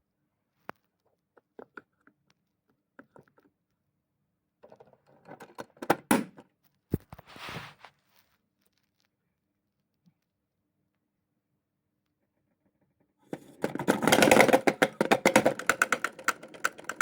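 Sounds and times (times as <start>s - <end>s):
small objects clicking and knocking: 13.3s - 17.0s.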